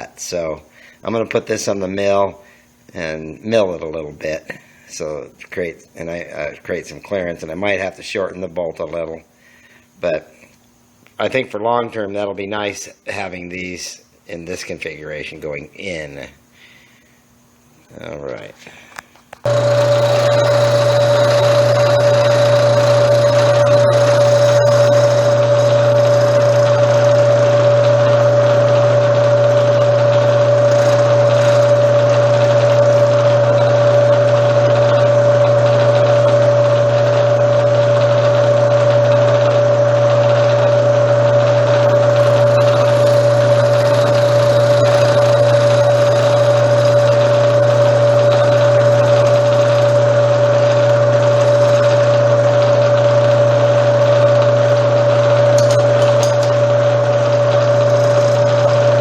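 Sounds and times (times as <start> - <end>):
milling machine whine: 19.3 - 59.0
low hum: 19.4 - 59.0.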